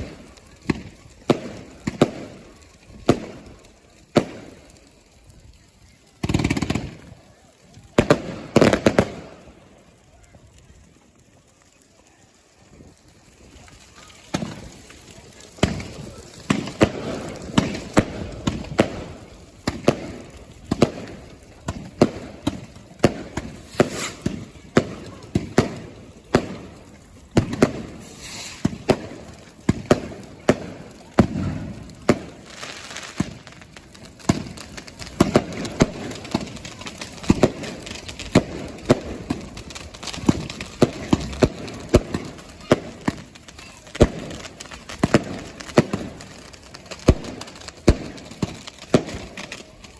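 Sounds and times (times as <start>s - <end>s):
fireworks banging: 0.0s - 49.9s
people's voices: 0.0s - 49.9s.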